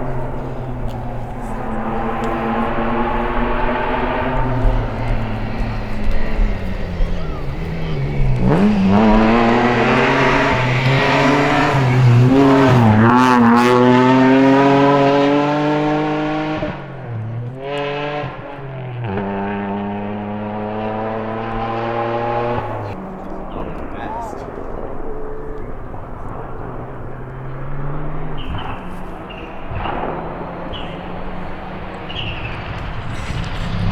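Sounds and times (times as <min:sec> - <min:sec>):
rally car engine accelerating: 0:00.0 - 0:33.9.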